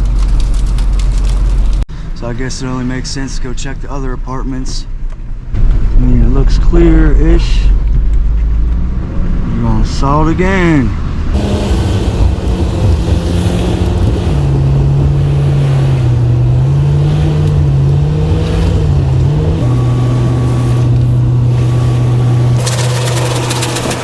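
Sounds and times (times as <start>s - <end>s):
truck engine running: 11.4s - 24.0s.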